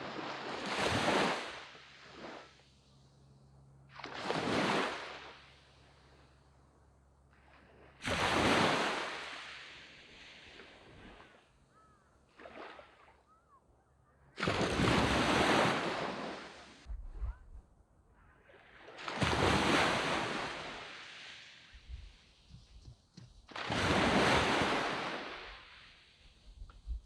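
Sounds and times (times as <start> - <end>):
sea waves crashing on beach: 0.0 - 2.8, 3.9 - 6.2, 7.5 - 11.5, 14.4 - 16.9, 18.5 - 22.5, 23.5 - 26.5.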